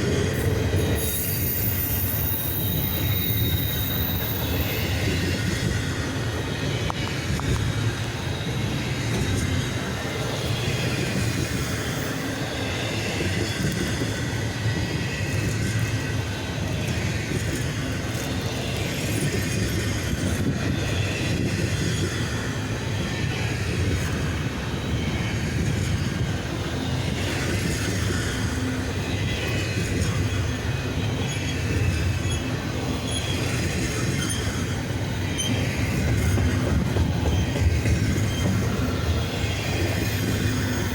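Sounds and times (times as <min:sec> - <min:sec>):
freight train wheels rumbling: 0:00.0 - 0:40.9
faint wheel squeal: 0:00.8 - 0:05.6, 0:31.2 - 0:35.8.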